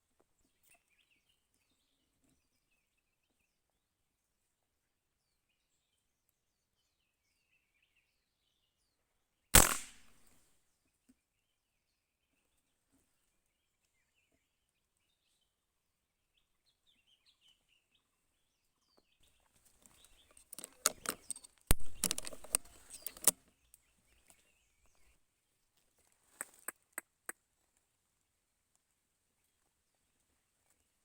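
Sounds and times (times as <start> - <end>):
loud crack: 9.6 - 10.2
sharp clicks and crackling rustle: 9.6 - 10.2, 19.7 - 23.8
small birds chirping: 10.8 - 27.8.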